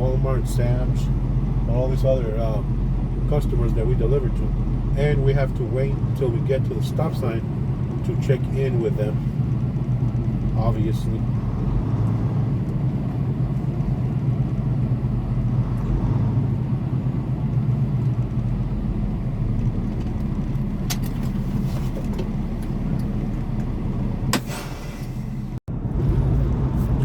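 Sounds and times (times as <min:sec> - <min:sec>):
truck diesel engine running: 0:00.0 - 0:27.0
brief hiss: 0:24.4 - 0:25.4.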